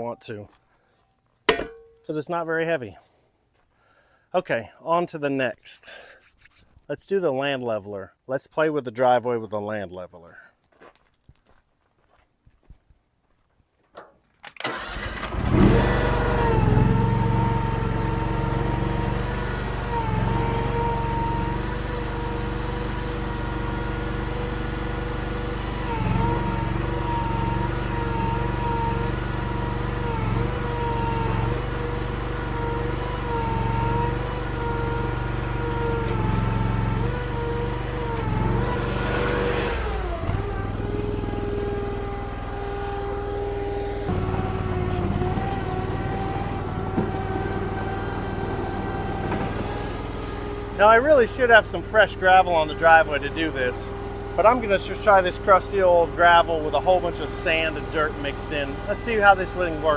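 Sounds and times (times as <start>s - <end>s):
small gas engine running: 14.6s - 59.9s.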